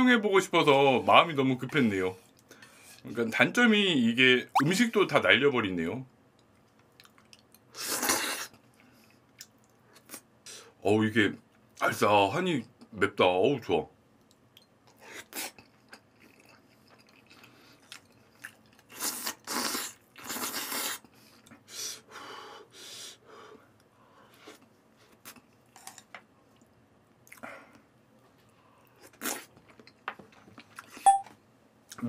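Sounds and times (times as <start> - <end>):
person chewing with wet clicks: 6.4 - 7.7, 9.1 - 9.8, 14.2 - 20.8, 26.5 - 27.4, 28.9 - 31.0.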